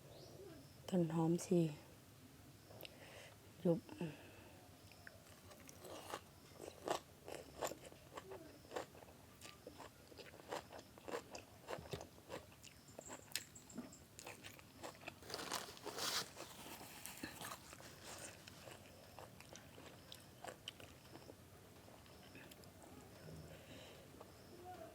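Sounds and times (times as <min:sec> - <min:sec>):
chewing crunchy food: 0:04.9 - 0:22.8.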